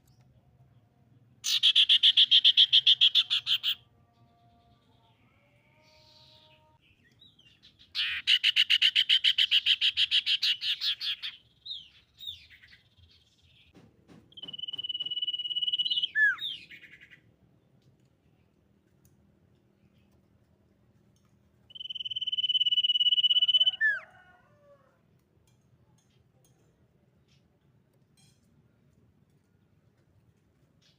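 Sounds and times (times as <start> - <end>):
bird trilling and whistling: 1.4 - 3.8, 7.9 - 11.4, 14.4 - 17.2, 21.7 - 24.0.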